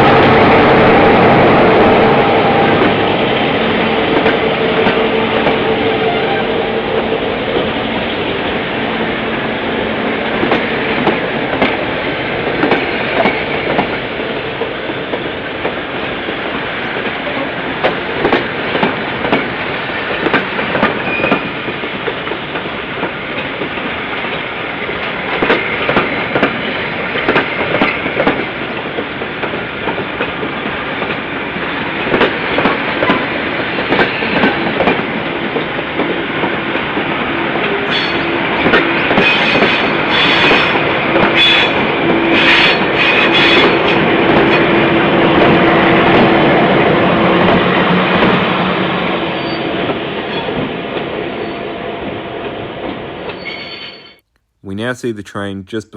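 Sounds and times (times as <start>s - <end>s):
train rolling noise: 0.0s - 54.0s
train wheels clicking over rail joints: 10.2s - 14.0s.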